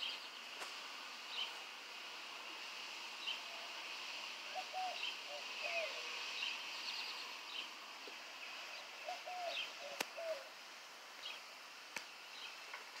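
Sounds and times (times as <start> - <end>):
birds chirping: 0.0 - 0.7, 1.3 - 1.7, 4.4 - 10.6, 11.2 - 11.5, 12.3 - 12.8
steady outdoor hiss: 0.0 - 13.0.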